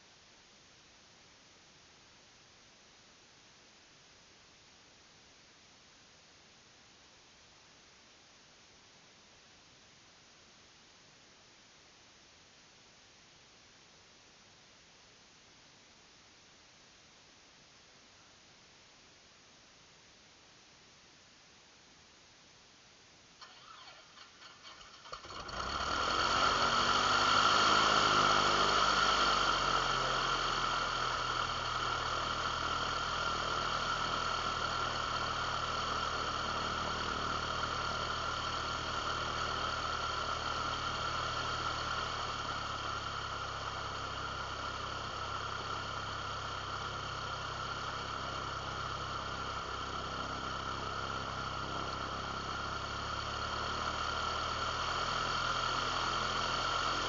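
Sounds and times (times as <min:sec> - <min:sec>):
aircraft piston engine idling: 0:23.4 - 0:57.0.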